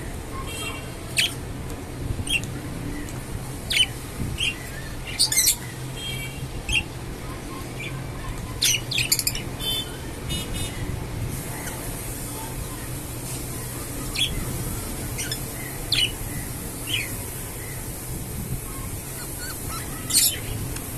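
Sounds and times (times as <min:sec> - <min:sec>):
budgerigars chirping and squawking: 0:00.4 - 0:01.4, 0:02.2 - 0:02.5, 0:03.6 - 0:12.6, 0:13.5 - 0:20.9
budgerigars warbling chatter: 0:00.6 - 0:01.4, 0:03.6 - 0:05.8, 0:06.7 - 0:08.0, 0:08.6 - 0:10.7, 0:11.4 - 0:12.2, 0:13.6 - 0:20.9.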